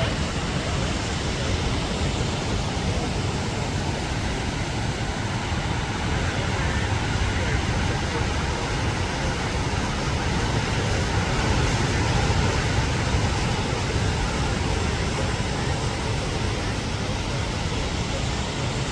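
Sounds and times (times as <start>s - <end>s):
waterfall rushing: 0.0s - 1.5s.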